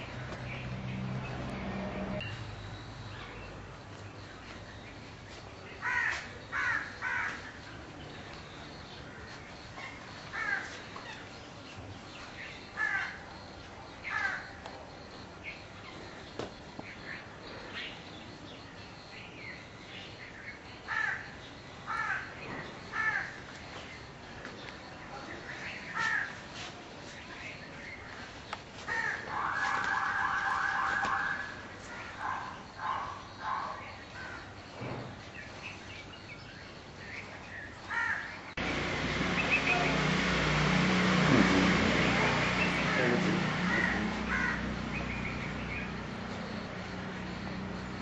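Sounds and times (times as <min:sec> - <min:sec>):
birds calling: 0:00.0 - 0:26.5, 0:27.1 - 0:48.0
faint background noise: 0:00.0 - 0:48.0
bird calls: 0:27.1 - 0:46.6.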